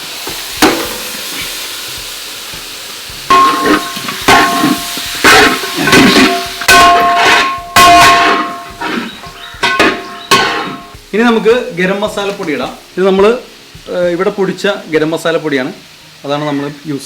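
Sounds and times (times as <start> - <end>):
food sizzling in hot oil: 0.0 - 17.0
metal clanks and scrapes: 3.3 - 11.0.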